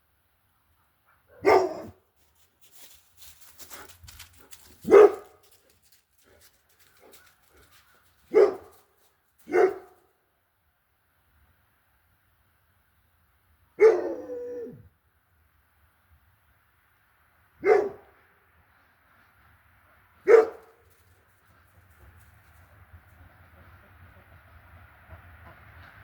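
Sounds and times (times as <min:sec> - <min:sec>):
dog barking: 0:01.2 - 0:02.0, 0:04.8 - 0:05.6, 0:07.8 - 0:08.8, 0:09.4 - 0:10.0, 0:13.8 - 0:14.3, 0:17.6 - 0:18.2, 0:20.2 - 0:20.8.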